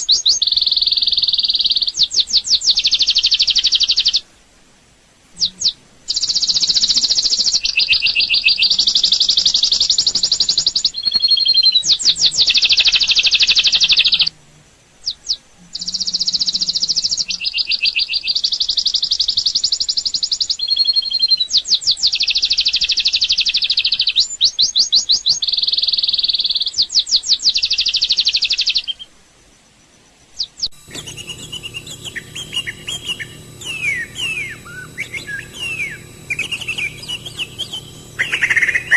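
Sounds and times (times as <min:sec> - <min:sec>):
birds chirping: 0:30.7 - 0:38.9
low hum: 0:30.7 - 0:38.9
songbird singing rapid trills: 0:30.8 - 0:38.9.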